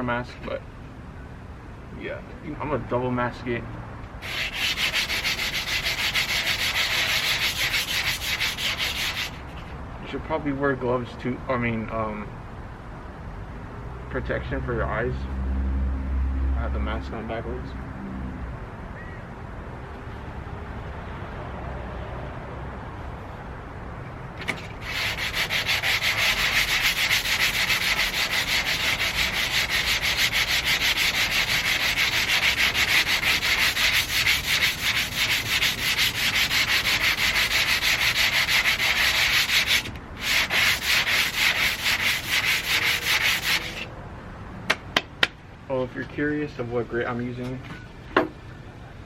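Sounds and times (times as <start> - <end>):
sandpaper rubbing on painted metal: 4.2 - 9.7, 24.6 - 43.9.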